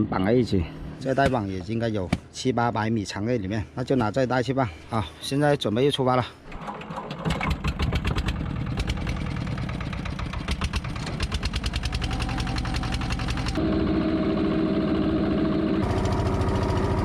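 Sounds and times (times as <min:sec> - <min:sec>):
boat engine running: 0:07.4 - 0:17.0.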